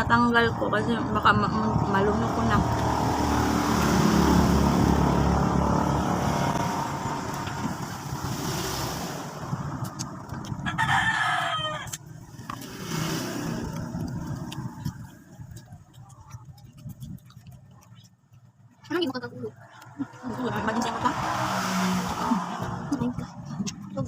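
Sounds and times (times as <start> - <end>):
vehicle passing: 0.0 - 24.0
rooster crowing: 10.6 - 12.0.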